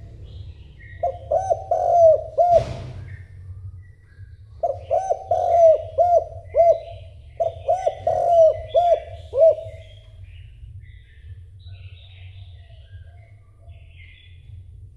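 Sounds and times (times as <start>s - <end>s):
small birds chirping: 0.0s - 14.9s
steady low hum: 0.0s - 14.9s
dove cooing: 0.8s - 3.2s, 4.6s - 10.2s.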